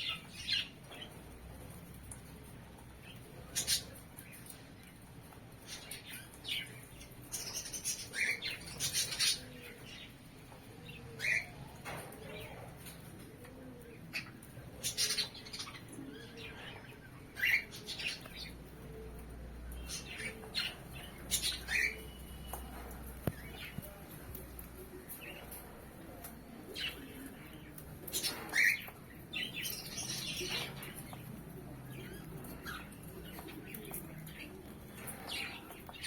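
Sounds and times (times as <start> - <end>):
pet birds chirping and squawking: 3.1 - 4.6, 5.6 - 10.1, 11.0 - 12.0, 14.0 - 19.0, 19.7 - 24.0, 28.0 - 36.0.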